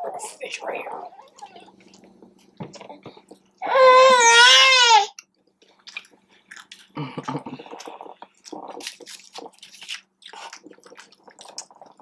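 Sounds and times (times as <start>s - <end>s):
faint steady hum: 0.0s - 12.0s
crunchy chewing of fried food: 5.6s - 12.0s.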